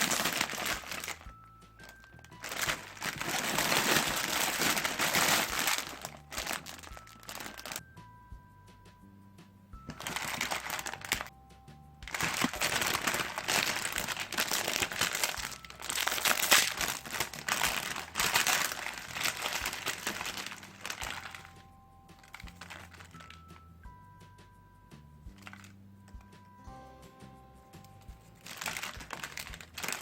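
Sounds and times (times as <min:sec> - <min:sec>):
plastic packaging crinkling: 0:00.0 - 0:07.8, 0:09.8 - 0:11.3, 0:12.1 - 0:21.6, 0:22.2 - 0:23.6, 0:25.3 - 0:25.7, 0:28.0 - 0:30.0
quiet background music: 0:00.0 - 0:30.0.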